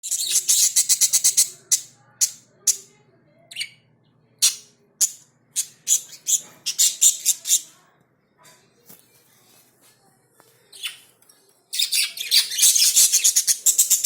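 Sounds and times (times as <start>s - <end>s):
parrots chirping shrilly: 0.1s - 2.9s, 4.4s - 7.7s, 11.8s - 14.0s.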